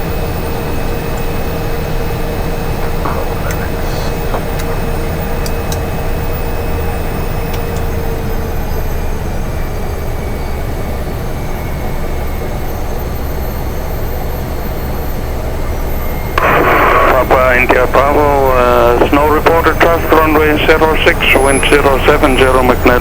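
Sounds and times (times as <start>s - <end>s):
steady whine: 0.0s - 9.0s, 12.5s - 23.0s
turboprop engine drone: 0.0s - 23.0s.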